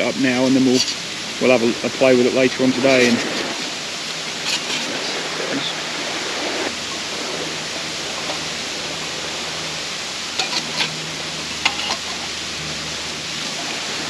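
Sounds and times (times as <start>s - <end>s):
steady rushing noise: 0.0s - 14.0s
metal panels clicking: 11.6s - 12.3s.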